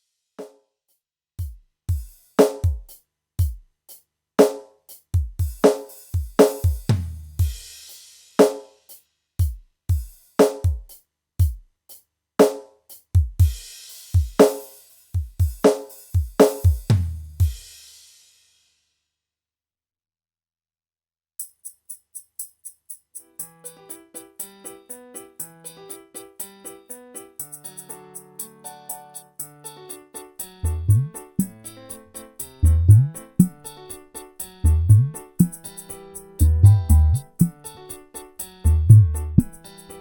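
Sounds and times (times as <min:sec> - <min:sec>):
hand drum syncopated pattern: 0:01.4 - 0:03.7, 0:04.4 - 0:07.8, 0:09.4 - 0:11.7, 0:12.4 - 0:17.7, 0:30.6 - 0:40.0.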